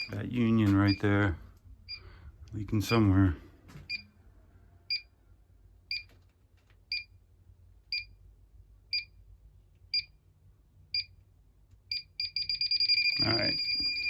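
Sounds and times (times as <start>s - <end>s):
gas detector beeping: 0.0s - 1.1s, 11.9s - 14.0s.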